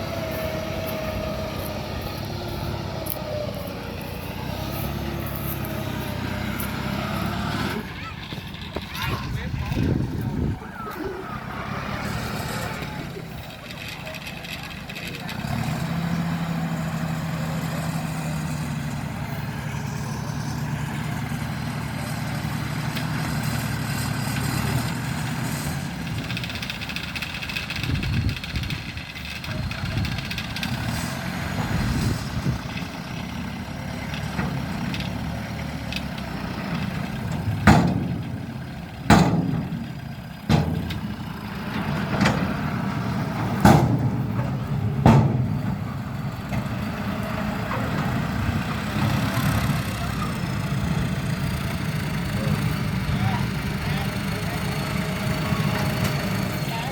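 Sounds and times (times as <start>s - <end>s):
vehicle engine running: 0.0s - 56.9s
sharp knocks: 37.4s - 41.2s, 43.4s - 46.1s.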